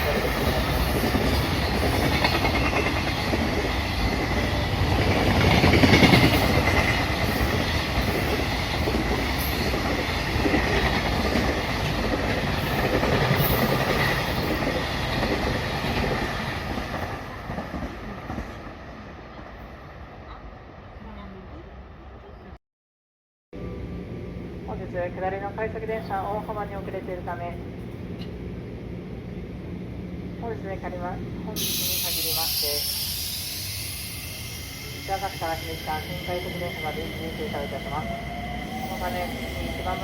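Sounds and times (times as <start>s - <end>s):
train wheels clattering: 0.0s - 18.4s
faint high wheel squeal: 31.7s - 38.0s.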